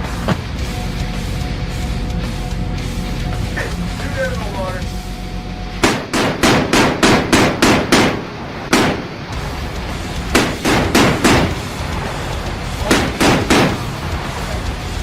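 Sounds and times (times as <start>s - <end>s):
chain gun firing bursts: 5.8s - 9.0s, 10.4s - 11.6s, 12.9s - 13.8s.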